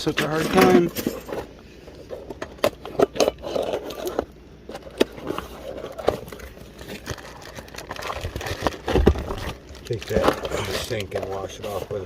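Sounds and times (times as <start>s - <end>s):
packaging crinkling: 3.4s - 11.6s.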